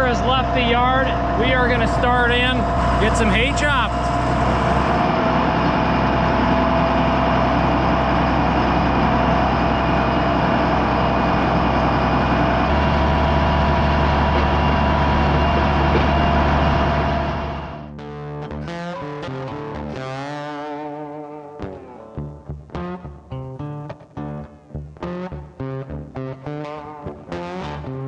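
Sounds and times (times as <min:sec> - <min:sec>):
tractor diesel engine running: 0:00.0 - 0:17.9.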